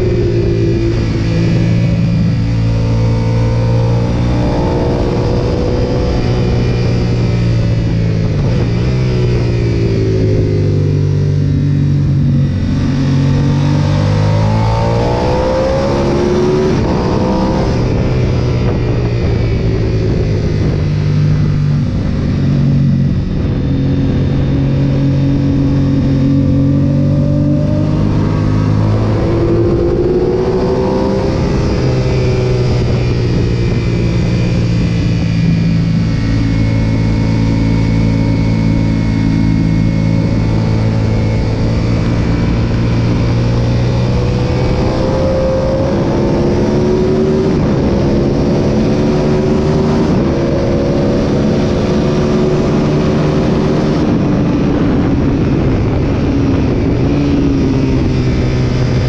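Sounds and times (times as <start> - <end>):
motorcycle engine revving: 0.0 - 59.0
wind rush: 0.0 - 59.0.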